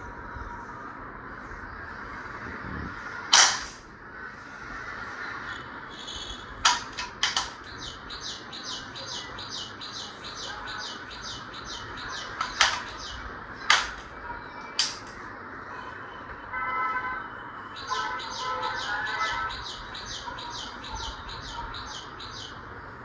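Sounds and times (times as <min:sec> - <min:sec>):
loud sharp cracks: 0:03.3 - 0:04.0, 0:12.4 - 0:14.2, 0:14.8 - 0:15.2
bird chirping: 0:05.5 - 0:15.1, 0:17.7 - 0:22.7.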